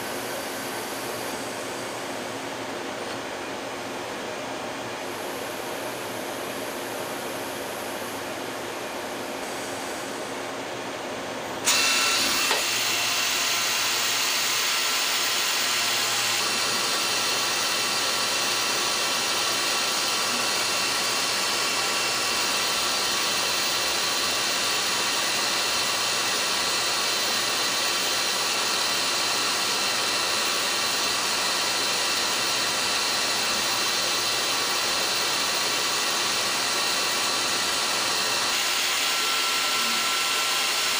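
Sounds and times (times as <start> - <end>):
lathe running: 11.6 - 40.9.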